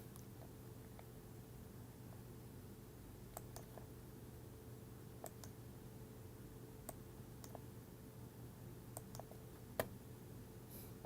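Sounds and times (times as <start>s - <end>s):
low room hum: 0.0s - 11.0s
computer mouse clicks: 3.3s - 3.9s, 5.2s - 5.6s, 6.9s - 7.6s, 9.0s - 9.9s.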